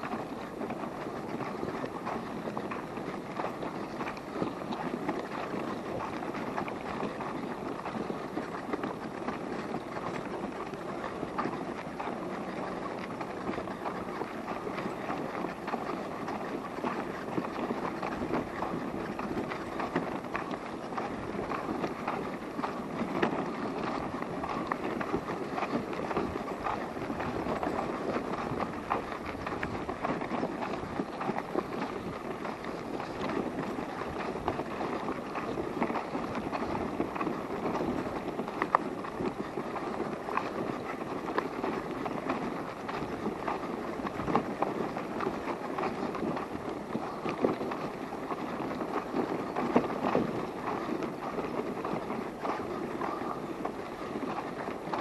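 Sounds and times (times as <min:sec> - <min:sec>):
wheels rolling over rough path: 0:01.2 - 0:37.8.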